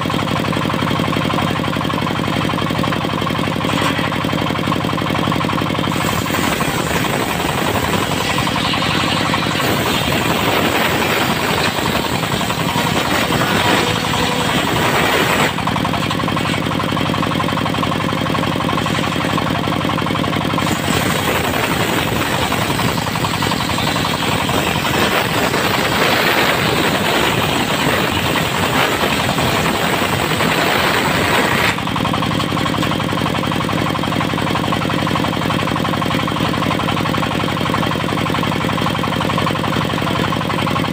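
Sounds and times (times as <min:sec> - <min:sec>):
diesel engine running: 0:00.0 - 0:40.9
saw blade ripping through wood: 0:03.6 - 0:04.4, 0:05.9 - 0:17.0, 0:18.6 - 0:19.8, 0:20.6 - 0:31.9.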